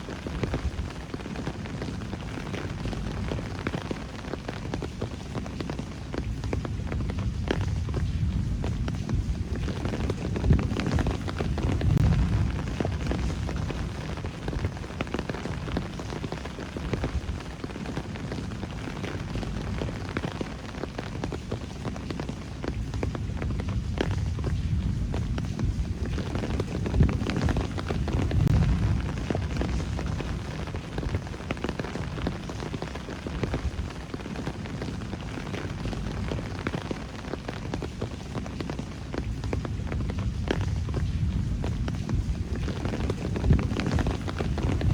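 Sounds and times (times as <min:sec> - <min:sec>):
steady rain drops: 0:00.0 - 0:44.9
low rumble: 0:06.9 - 0:16.0, 0:23.2 - 0:31.4, 0:40.2 - 0:44.9.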